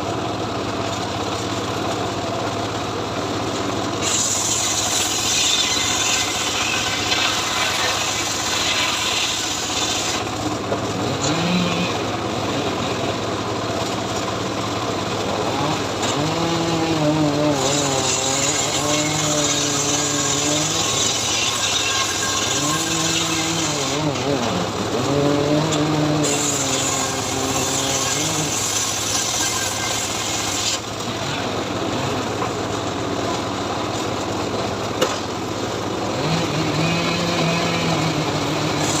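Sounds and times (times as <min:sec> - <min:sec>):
saw motor running: 0:00.0 - 0:39.0
saw blade rasping through wood: 0:04.0 - 0:10.4, 0:11.0 - 0:13.0, 0:15.2 - 0:31.4, 0:36.2 - 0:39.0.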